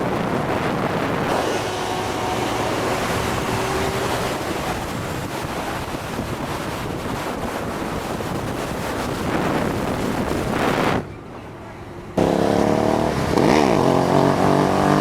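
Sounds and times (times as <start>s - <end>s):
wind on microphone: 0.0s - 11.3s, 12.2s - 15.0s
motorbike engine at speed: 0.5s - 7.4s, 12.2s - 15.0s.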